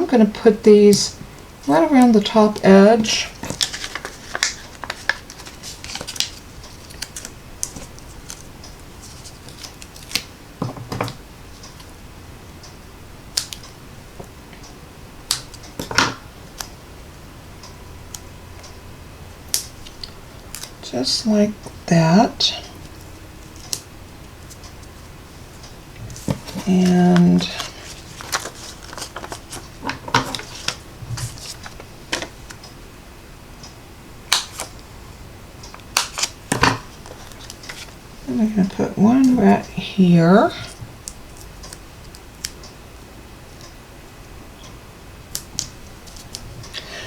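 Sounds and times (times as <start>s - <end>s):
faint low hum: 0.0s - 47.0s
paper rustle: 3.2s - 10.3s, 26.1s - 32.5s.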